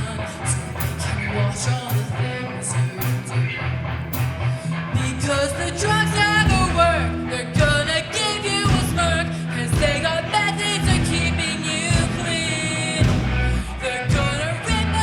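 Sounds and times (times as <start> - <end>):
bass and drums: 0.0 - 15.0
electric guitar strumming: 0.0 - 15.0
person singing: 4.9 - 15.0.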